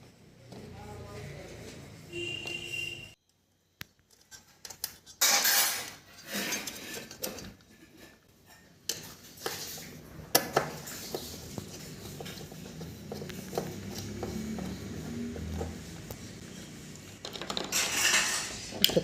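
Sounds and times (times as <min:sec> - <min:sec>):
parts scraping: 0:04.1 - 0:19.0
small hard parts clattering: 0:17.1 - 0:19.0.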